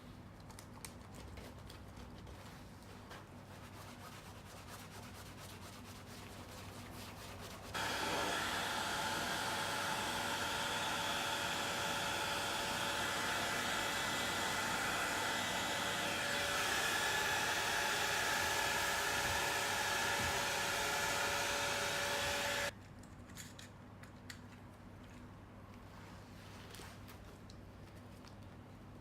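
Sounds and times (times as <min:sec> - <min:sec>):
electric blower motor whirring: 0:07.8 - 0:22.7.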